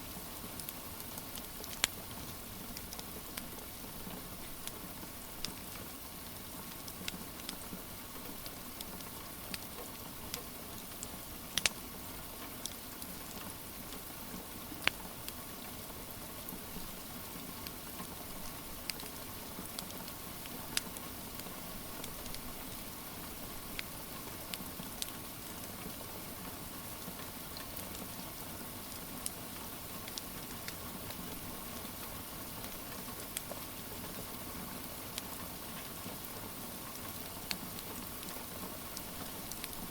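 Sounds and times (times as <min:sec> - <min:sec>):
steady rain hiss: 0:00.0 - 0:39.9
wood fire crackling and popping: 0:00.5 - 0:03.7, 0:04.3 - 0:14.1, 0:14.8 - 0:15.4, 0:17.6 - 0:22.9, 0:23.6 - 0:25.8, 0:27.5 - 0:28.1, 0:30.0 - 0:31.9, 0:32.6 - 0:33.6, 0:37.0 - 0:39.9.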